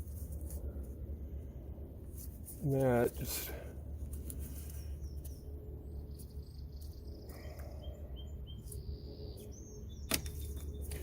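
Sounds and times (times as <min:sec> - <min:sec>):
steady low hum: 0:00.0 - 0:11.0
faint bird chirps: 0:04.7 - 0:11.0.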